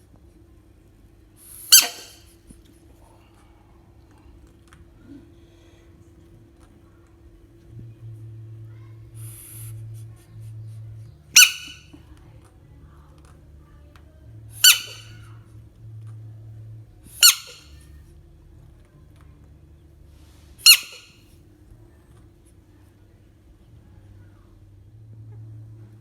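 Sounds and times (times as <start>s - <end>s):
frog squealing: 1.7s - 2.2s, 11.4s - 11.8s, 14.6s - 15.2s, 17.2s - 17.7s, 20.6s - 21.1s.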